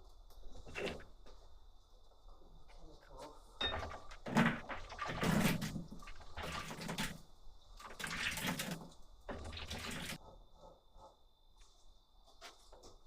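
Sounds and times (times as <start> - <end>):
liquid splashing: 4.2 - 10.2.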